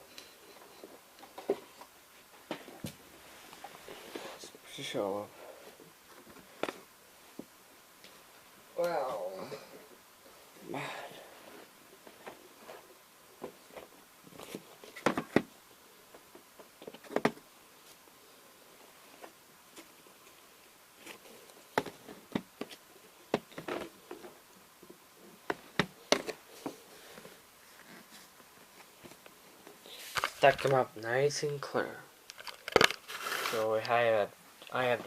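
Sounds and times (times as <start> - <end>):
clicks of small objects handled: 32.3 - 34.0.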